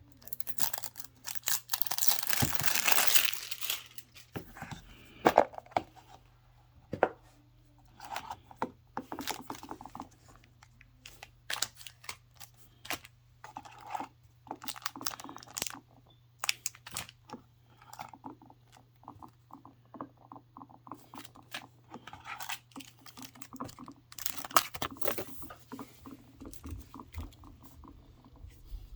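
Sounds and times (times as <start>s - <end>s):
packaging rustling and tearing: 0.3s - 4.4s.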